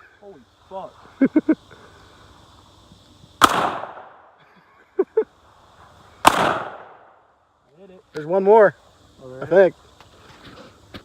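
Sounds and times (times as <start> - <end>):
rifle shots echoing: 3.4 - 4.3, 6.2 - 7.2.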